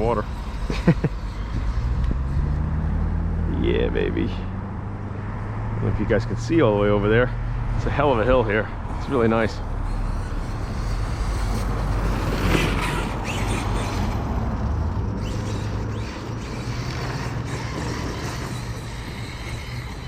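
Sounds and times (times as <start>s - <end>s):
electric motor whining: 0.0s - 3.6s, 7.8s - 20.0s.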